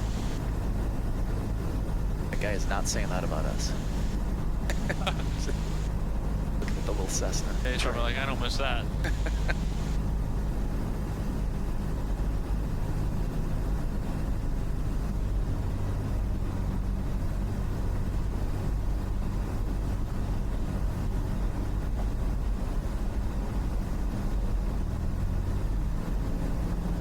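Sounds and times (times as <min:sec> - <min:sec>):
light aircraft engine droning: 0:00.0 - 0:27.0.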